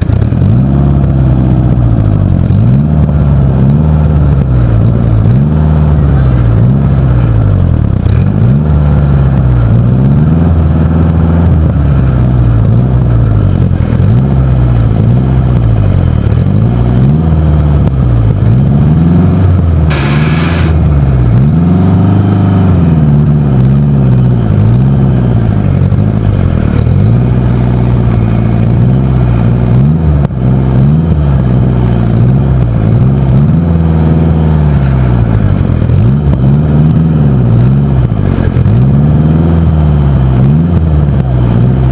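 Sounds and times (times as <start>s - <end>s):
tractor engine revving: 0.0s - 41.9s
brief hiss: 19.9s - 20.8s.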